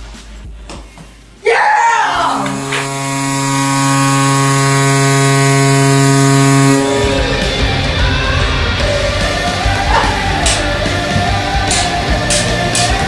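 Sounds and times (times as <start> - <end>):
loud shout: 1.4 - 2.6
hockey goal horn: 2.0 - 13.0.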